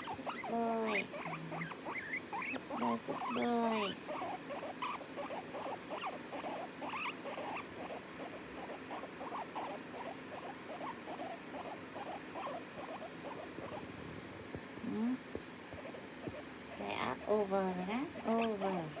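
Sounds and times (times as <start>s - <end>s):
small pet squeaking: 0.0s - 13.8s
steady low hum: 0.0s - 19.0s.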